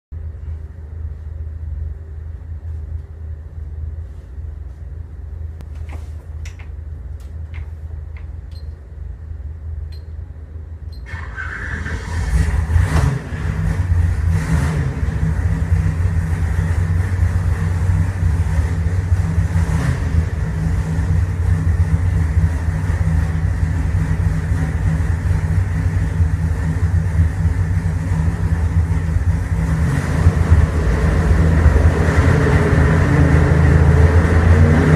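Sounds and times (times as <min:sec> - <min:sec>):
low steady hum: 0:00.1 - 0:34.9
clicks: 0:05.6 - 0:08.8, 0:09.9 - 0:10.2
engine starting and running: 0:05.6 - 0:34.9.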